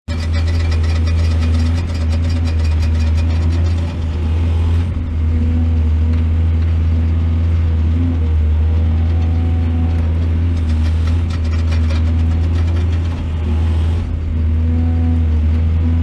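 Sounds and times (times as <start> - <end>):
rapid clatter of clicks and knocks: 0.0 - 5.0, 9.1 - 14.1
heavy excavator engine running: 0.0 - 16.0.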